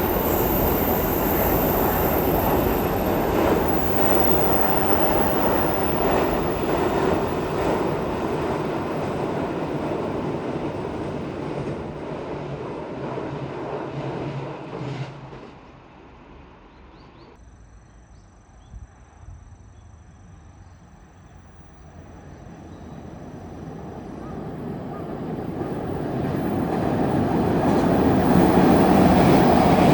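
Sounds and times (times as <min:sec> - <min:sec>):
faint outdoor ambience: 0:00.0 - 0:12.6, 0:15.3 - 0:29.9
train wheels rumbling on bridge: 0:00.0 - 0:16.6, 0:22.2 - 0:29.9.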